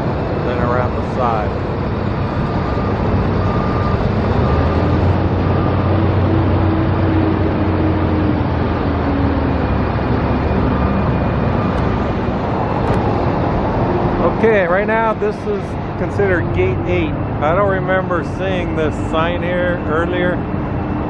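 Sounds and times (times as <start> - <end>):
heavy vehicle engine drone: 0.0 - 21.0
road traffic: 0.0 - 21.0
faint beep: 2.3 - 5.9.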